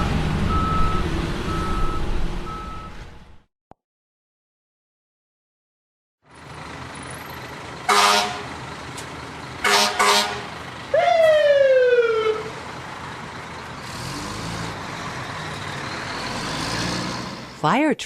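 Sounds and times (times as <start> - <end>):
fire truck horn: 7.8 - 8.6, 9.6 - 12.6
siren wail: 10.9 - 12.6.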